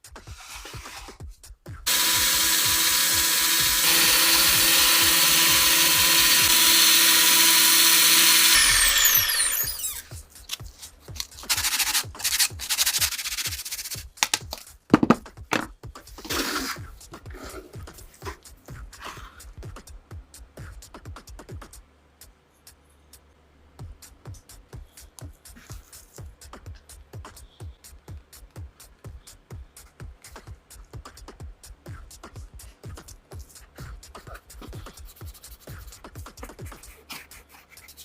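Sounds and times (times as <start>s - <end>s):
power tool running: 1.9s - 10.2s
power tool spinning down: 1.9s - 10.2s.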